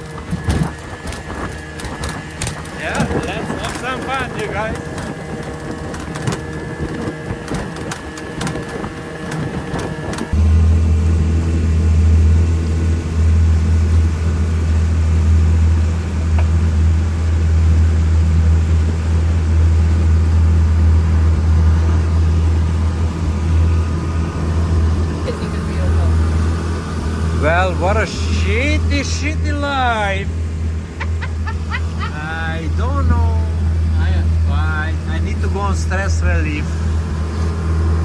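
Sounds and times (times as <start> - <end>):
clicking and clatter: 0.0 - 10.4
low engine drone: 0.0 - 38.0
steady whine: 0.0 - 38.0.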